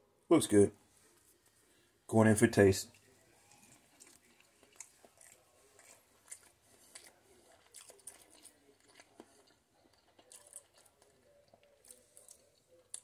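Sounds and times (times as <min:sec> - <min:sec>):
person chewing food: 0:02.9 - 0:13.0.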